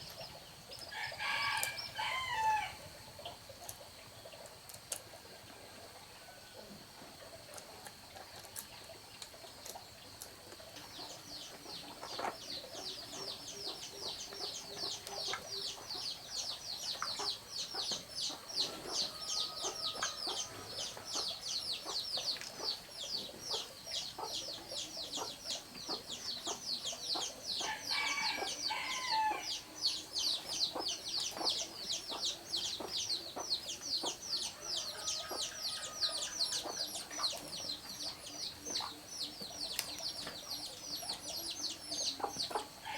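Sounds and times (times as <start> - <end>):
chicks peeping: 10.9 - 42.9.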